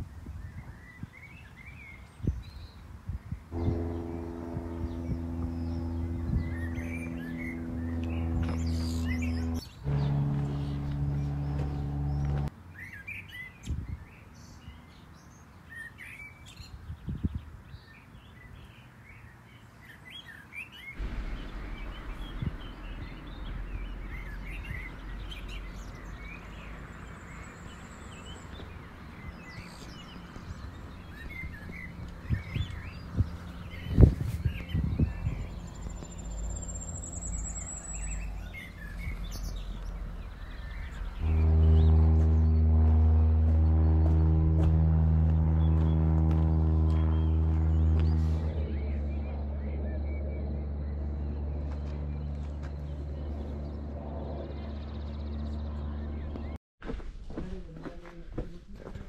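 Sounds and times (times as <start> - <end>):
small songbirds chirping: 0.0 - 42.7
low steady rumble: 3.5 - 12.5, 21.0 - 56.6
high thin bird trill: 3.6 - 12.5.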